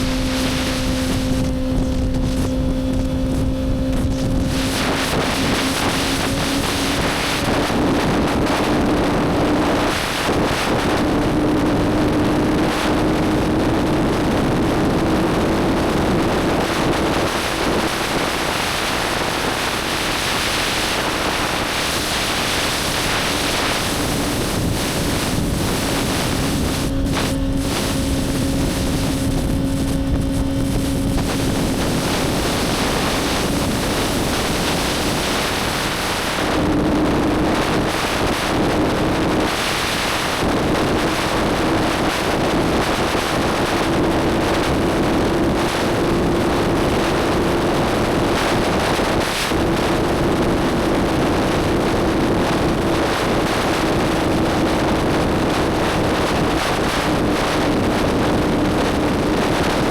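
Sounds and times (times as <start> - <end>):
motorcycle engine running: 0.0 - 9.9, 21.0 - 37.8
wind rush over microphone: 0.0 - 59.9.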